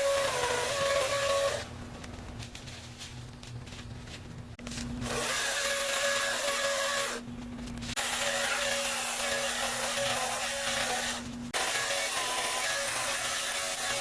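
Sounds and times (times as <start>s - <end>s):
chainsaw cutting wood: 0.0s - 1.7s, 5.0s - 7.2s, 8.0s - 14.0s.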